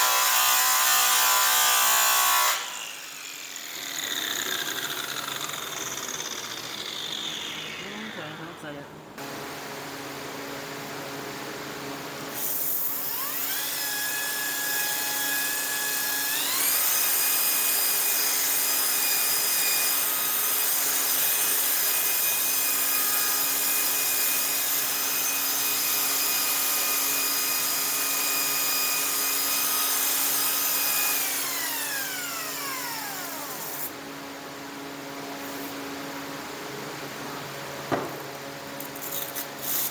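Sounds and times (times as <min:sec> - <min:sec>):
angle grinder running: 0:02.6 - 0:08.6.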